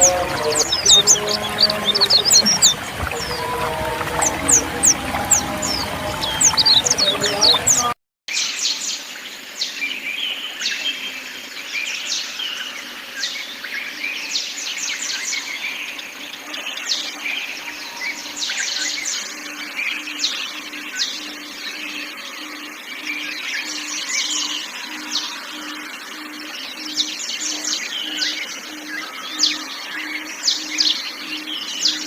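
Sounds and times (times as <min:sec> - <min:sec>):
low pulsing note: 0:00.0 - 0:07.7
birds singing and chirping: 0:00.0 - 0:32.0.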